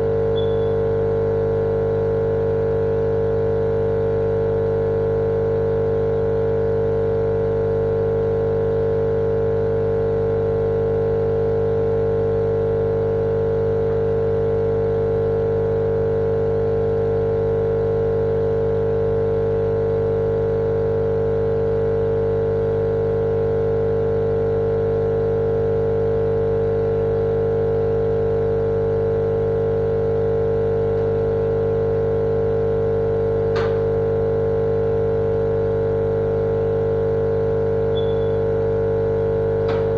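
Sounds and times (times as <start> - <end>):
steady machine drone: 33.5 - 34.0, 39.4 - 39.9.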